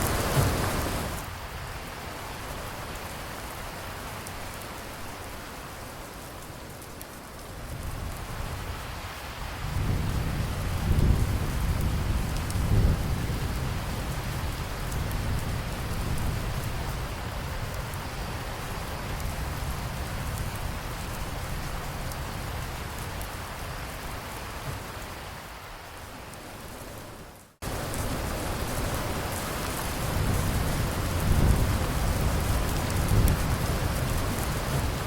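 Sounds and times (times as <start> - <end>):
steady rain: 0.0 - 35.0
low rolling thunder: 9.6 - 17.4, 27.6 - 35.0.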